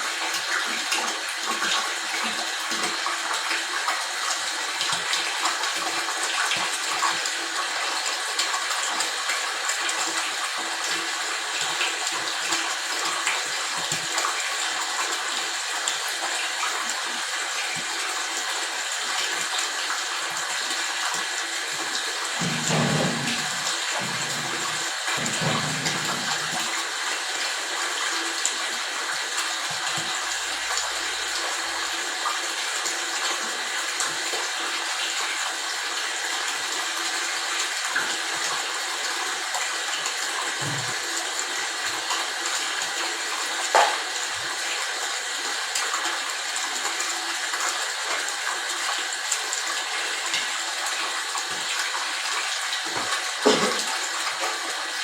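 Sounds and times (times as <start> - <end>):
flowing water rushing: 21.3 - 27.7, 43.6 - 44.5, 49.1 - 55.0.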